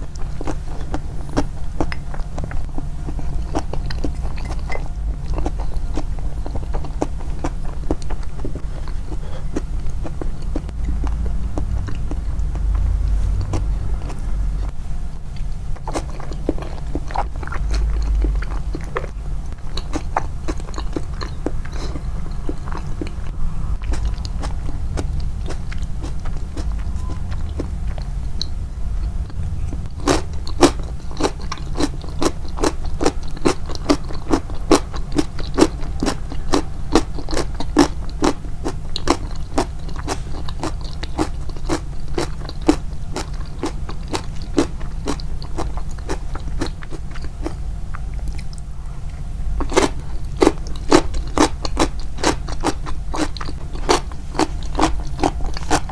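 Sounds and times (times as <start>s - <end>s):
chewing crunchy pickles: 0.0s - 55.9s.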